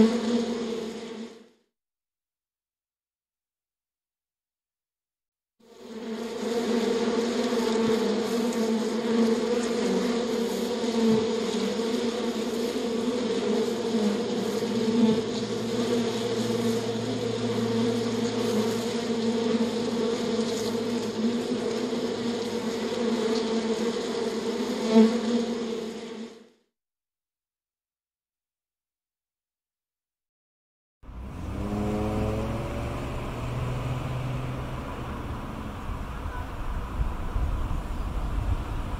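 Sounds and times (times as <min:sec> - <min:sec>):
honeybees buzzing: 0:00.0 - 0:01.4, 0:05.7 - 0:26.5, 0:31.1 - 0:36.5
deeper buzz: 0:13.6 - 0:23.4, 0:31.0 - 0:38.9.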